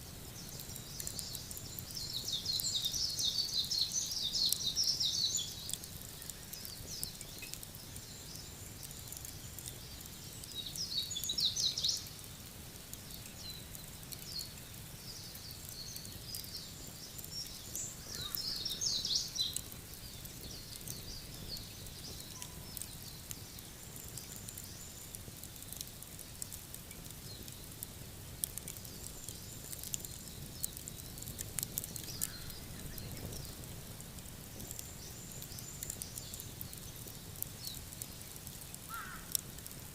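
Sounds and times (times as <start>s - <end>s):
wood fire crackling: 0.0s - 39.9s
birds twittering: 13.3s - 25.1s, 28.5s - 33.7s, 38.6s - 39.4s.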